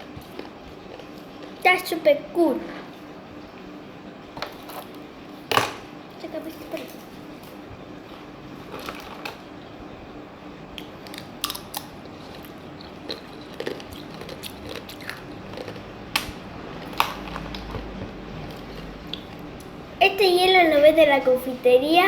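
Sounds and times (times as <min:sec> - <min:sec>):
sugar candy crunching: 0:10.8 - 0:19.5.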